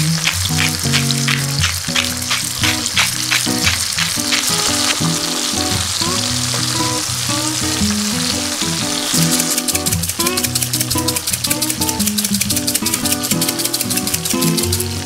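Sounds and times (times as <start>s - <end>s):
background music: 0.0s - 15.0s
shrimp sizzling in frying pan: 0.0s - 15.0s.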